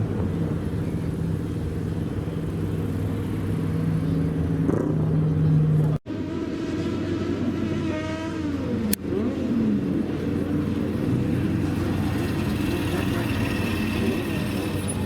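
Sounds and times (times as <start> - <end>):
another engine: 0.0 - 15.0
car engine running: 9.8 - 15.0.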